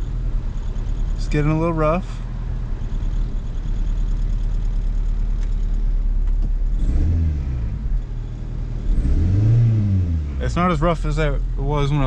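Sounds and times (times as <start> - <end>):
car engine idling roughly: 0.0 - 6.7.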